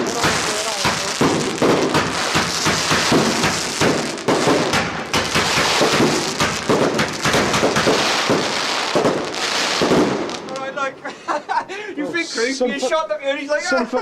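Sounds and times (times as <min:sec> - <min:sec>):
fireworks cracking and banging: 0:00.0 - 0:11.1.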